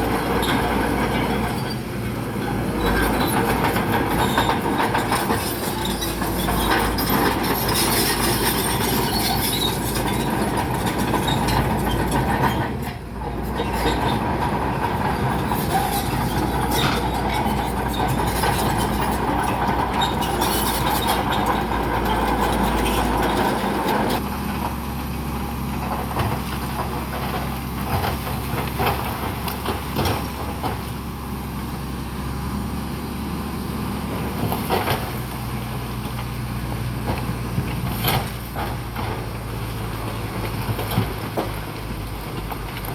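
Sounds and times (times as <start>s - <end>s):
steel tracks clanking: 0.0s - 24.8s
bulldozer diesel engine under load: 0.0s - 42.9s.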